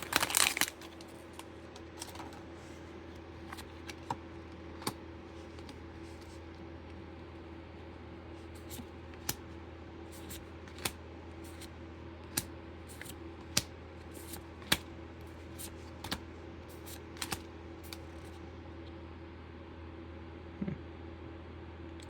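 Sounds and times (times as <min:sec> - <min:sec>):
foil wrapper crinkling: 0:00.0 - 0:02.3
trading cards clicking: 0:08.6 - 0:09.4, 0:10.2 - 0:14.9, 0:15.5 - 0:18.4.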